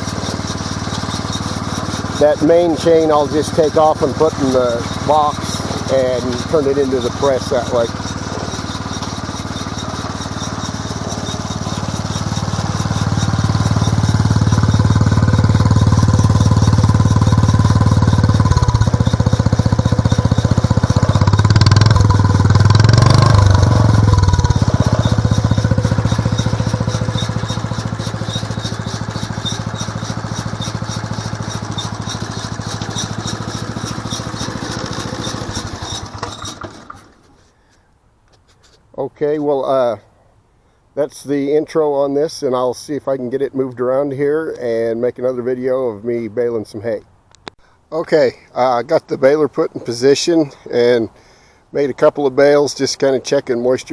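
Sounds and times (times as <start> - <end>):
small engine running baler: 0.0 - 37.8
irregular rattling: 0.0 - 38.9.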